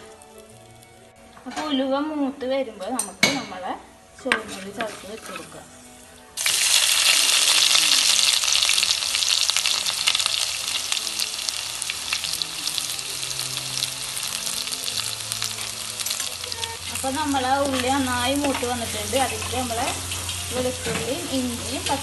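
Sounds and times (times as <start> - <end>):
shallots sizzling in hot oil: 0.0 - 2.0, 4.2 - 22.0.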